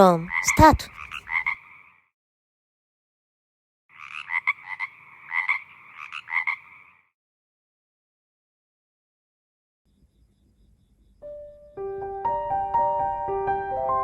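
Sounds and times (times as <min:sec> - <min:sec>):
frog croaking trill: 0:00.3 - 0:02.1, 0:03.9 - 0:07.1.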